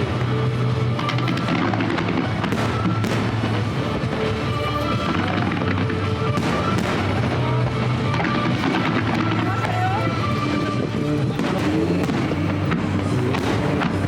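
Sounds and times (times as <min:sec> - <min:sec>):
background music: 0:00.0 - 0:14.0
fireworks bangs and crackles: 0:00.0 - 0:14.0.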